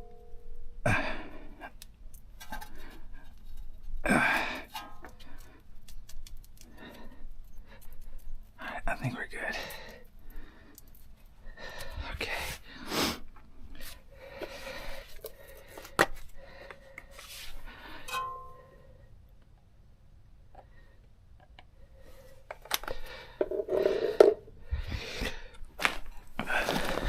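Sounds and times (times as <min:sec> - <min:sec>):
metal tools clinking: 0:18.1 - 0:18.6
short metallic ring: 0:18.1 - 0:18.8.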